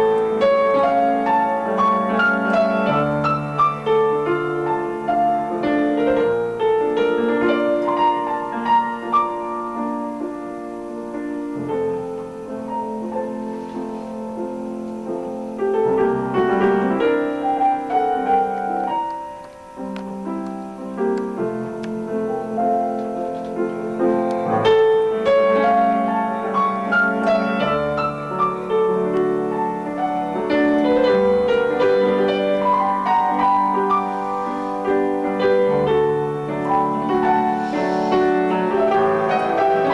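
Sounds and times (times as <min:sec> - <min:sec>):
piano melody over chords: 0:00.0 - 0:39.9.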